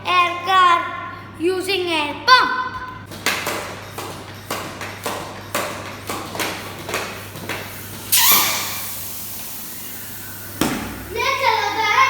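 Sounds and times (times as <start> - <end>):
air pump strokes: 4.0 - 11.7
burst of hissing air: 7.6 - 11.3.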